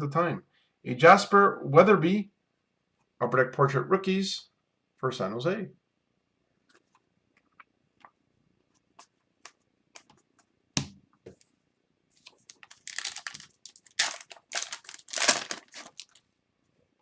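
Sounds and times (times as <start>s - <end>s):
foil wrapper tearing and crinkling: 12.4s - 16.2s.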